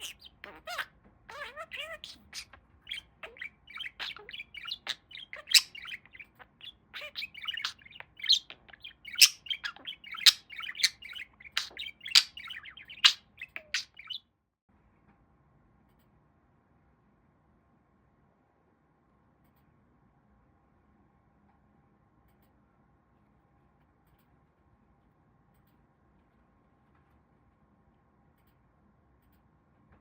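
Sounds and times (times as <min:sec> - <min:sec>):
budgie warbling and chirping: 0:00.0 - 0:14.2.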